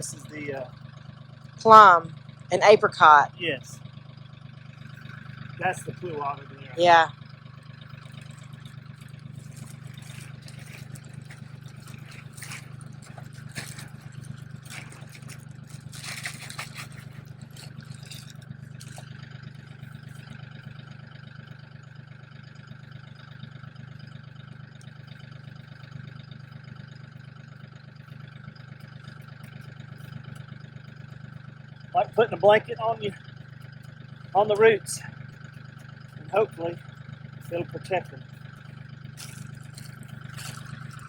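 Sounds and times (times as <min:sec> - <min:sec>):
steady low hum: 0:00.0 - 0:20.4, 0:27.9 - 0:41.0
scraping and rustling: 0:08.0 - 0:19.2, 0:39.1 - 0:41.0.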